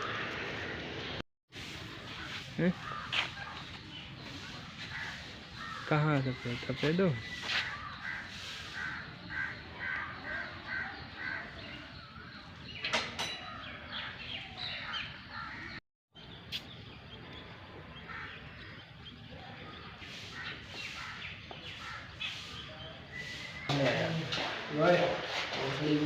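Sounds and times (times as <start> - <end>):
scattered bird calls: 0.0 - 26.0
short repeated bird calls: 7.2 - 12.6, 20.0 - 23.8.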